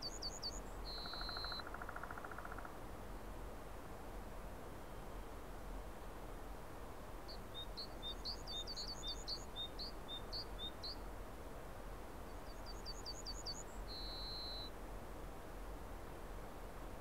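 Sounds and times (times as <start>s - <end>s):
small bird chirping: 0.0s - 2.4s, 7.5s - 11.0s, 12.4s - 14.7s
background hiss: 0.0s - 17.0s.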